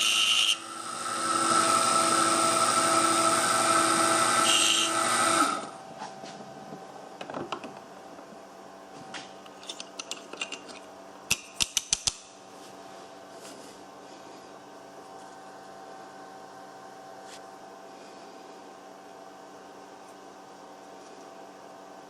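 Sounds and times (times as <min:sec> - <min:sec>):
milling spindle whining: 0:00.0 - 0:05.8.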